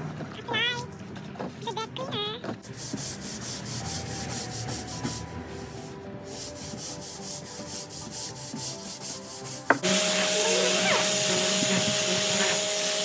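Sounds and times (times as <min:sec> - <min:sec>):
rubbing strokes on wooden boards: 0:02.6 - 0:13.0.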